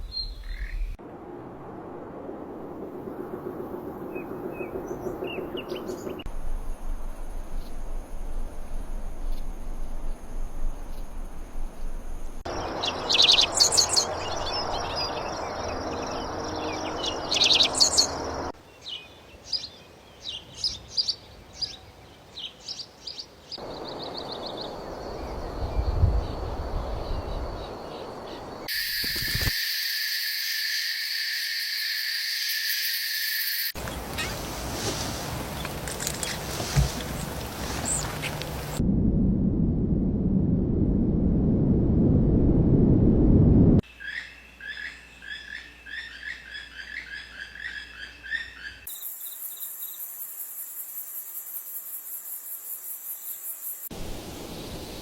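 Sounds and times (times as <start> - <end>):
birds chirping and calling: 12.5 - 19.7
high-pitched hiss: 28.7 - 35.7.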